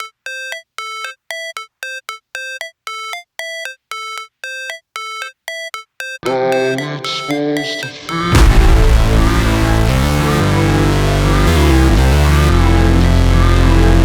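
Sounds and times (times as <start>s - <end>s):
synth beeping notes: 0.0s - 14.0s
music track with bass: 8.3s - 14.0s.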